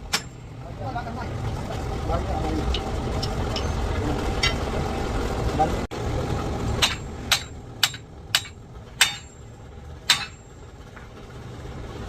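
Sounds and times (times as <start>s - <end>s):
hammer striking metal: 0.0s - 0.5s, 6.8s - 10.6s.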